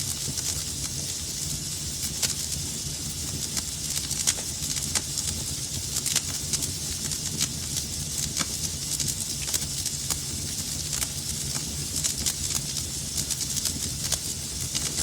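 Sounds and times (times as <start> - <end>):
fire rumble and hiss: 0.0 - 15.0
wood fire crackling and popping: 0.0 - 15.0.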